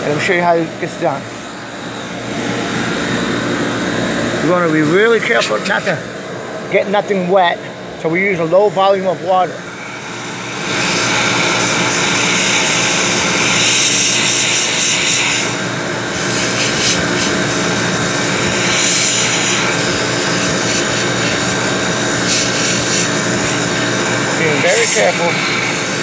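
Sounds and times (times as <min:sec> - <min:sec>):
air conditioning machinery humming: 0:00.0 - 0:26.0
water spray hissing: 0:18.5 - 0:25.9.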